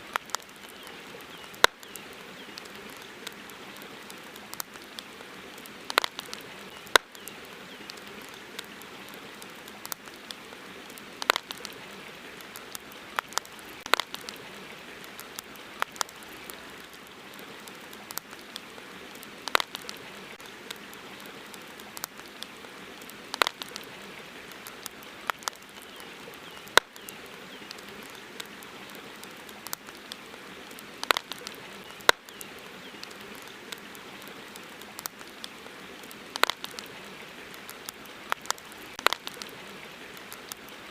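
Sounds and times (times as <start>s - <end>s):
campfire crackling: 0.0s - 40.9s
steady background hiss: 0.0s - 40.9s.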